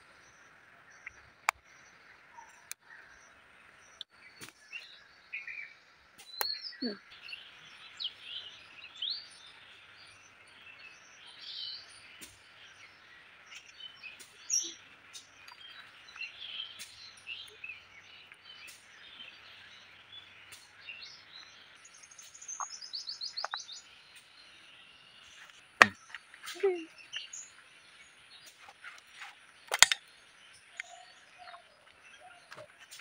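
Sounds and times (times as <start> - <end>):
wild birds chirping: 0.0 - 33.0
sharp click: 29.7 - 30.1.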